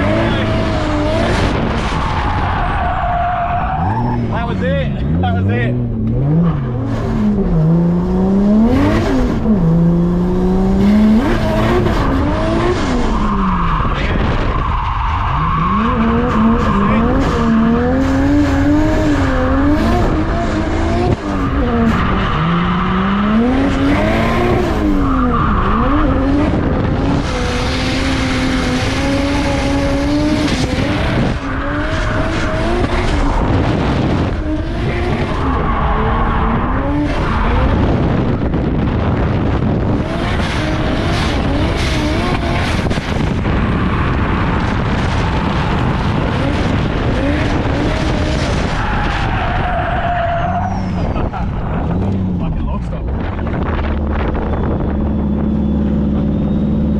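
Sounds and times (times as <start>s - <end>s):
car engine revving: 0.0s - 56.9s
tyre squeal: 48.8s - 52.3s.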